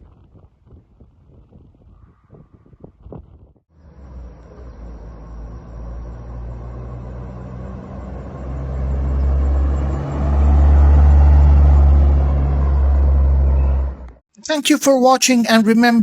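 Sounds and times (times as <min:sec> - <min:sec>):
pickup truck engine rumbling: 0:03.8 - 0:14.2.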